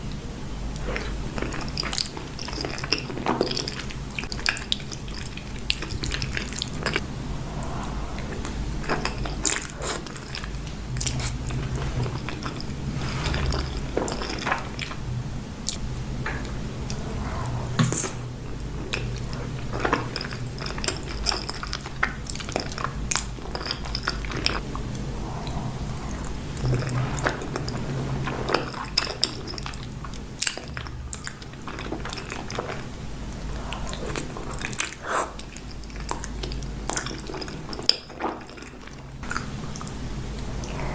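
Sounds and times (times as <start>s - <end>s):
wet chewing: 15.6s - 40.9s.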